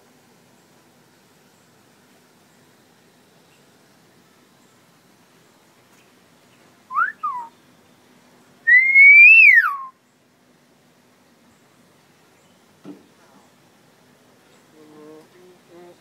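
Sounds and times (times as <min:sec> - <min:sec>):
bird whistling calls: 0:06.9 - 0:07.5, 0:08.7 - 0:10.0.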